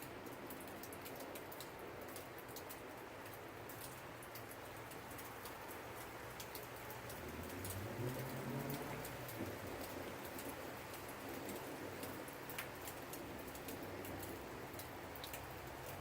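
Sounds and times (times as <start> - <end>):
rain drops ticking on a surface: 0.0 - 16.0
thunder rumble: 7.2 - 10.7.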